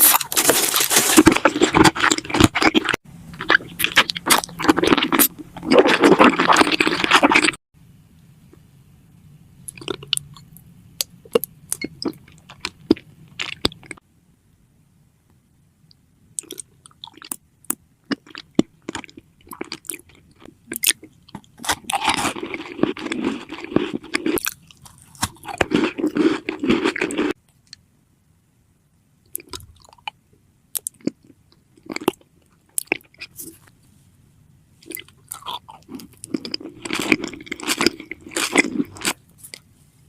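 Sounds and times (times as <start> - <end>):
crunchy chewing: 0.0 - 7.6, 11.3 - 14.0, 16.4 - 27.8, 30.8 - 33.8, 34.8 - 39.7.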